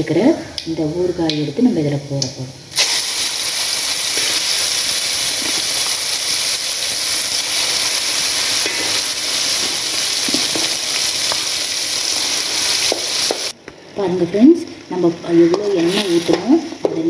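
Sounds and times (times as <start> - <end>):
paste sizzling in hot oil: 2.7 - 13.6.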